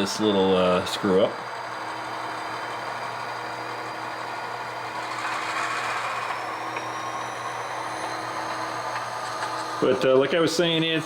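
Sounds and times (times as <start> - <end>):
faint high whine: 2.4 - 11.0.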